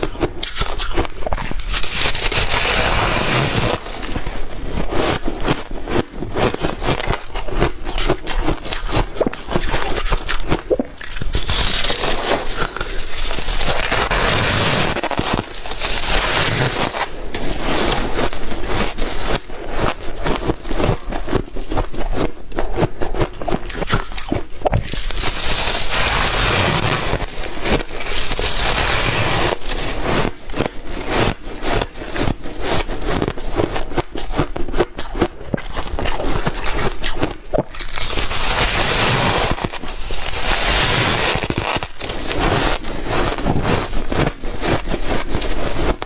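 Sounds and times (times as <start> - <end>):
ice crunching while chewed: 0.0 - 46.0.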